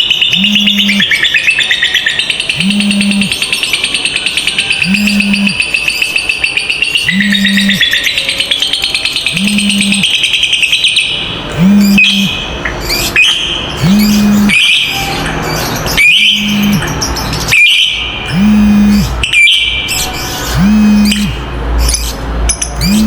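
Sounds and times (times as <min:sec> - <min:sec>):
lovebirds chattering: 0:00.0 - 0:23.0
low steady tone: 0:13.8 - 0:14.6, 0:16.3 - 0:16.9, 0:18.3 - 0:19.2, 0:20.5 - 0:21.5, 0:22.8 - 0:23.0.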